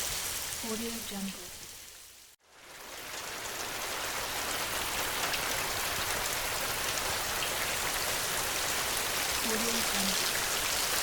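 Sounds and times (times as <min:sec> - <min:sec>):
heavy rain: 0:00.0 - 0:11.0.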